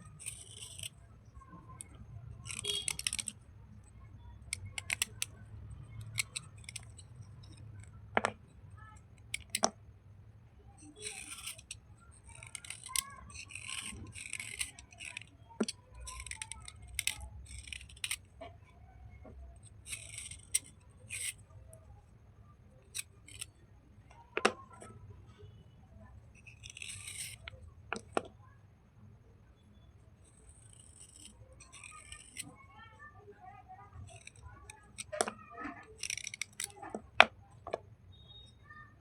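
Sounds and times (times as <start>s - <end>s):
slate crunching and scraping: 0.1s - 1.0s, 10.8s - 18.2s
slate snapping: 0.2s - 1.0s, 1.7s - 3.4s, 4.5s - 5.4s, 9.3s - 9.8s, 10.8s - 18.3s, 22.9s - 23.5s, 30.6s - 32.6s, 34.0s - 37.8s.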